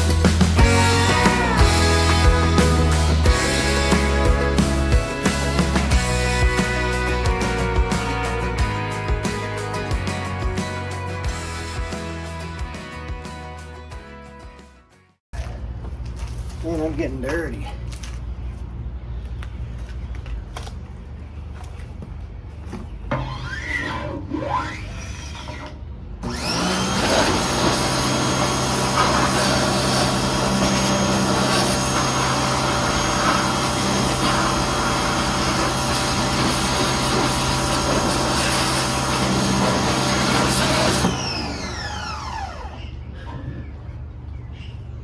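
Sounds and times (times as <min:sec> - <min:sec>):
pressure washer motor whining: 0:00.0 - 0:12.4, 0:26.2 - 0:43.0.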